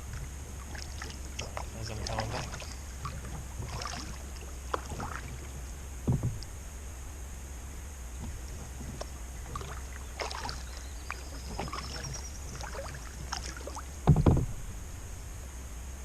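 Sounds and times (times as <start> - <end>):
paddle splashes in water: 0.0 - 6.5, 8.2 - 14.5
loud low thump: 6.0 - 6.4, 14.0 - 14.7
water dripping: 9.5 - 13.8.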